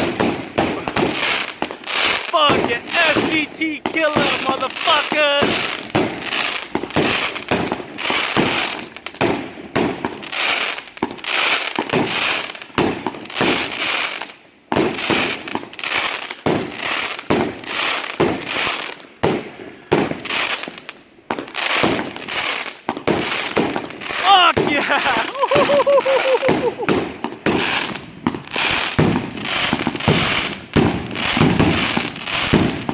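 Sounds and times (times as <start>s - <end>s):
firework shots banging: 0.0s - 10.2s, 22.9s - 32.9s.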